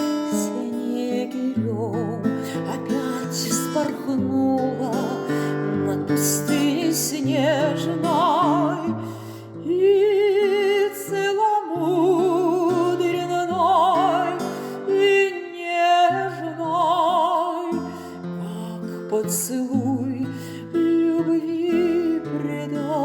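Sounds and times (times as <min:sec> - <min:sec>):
woman singing operatically: 0:00.0 - 0:23.0.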